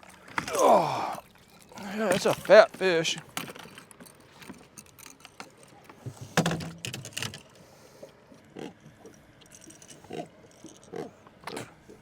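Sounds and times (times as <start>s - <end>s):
fish croaking grunt: 8.5s - 8.8s, 10.0s - 11.8s.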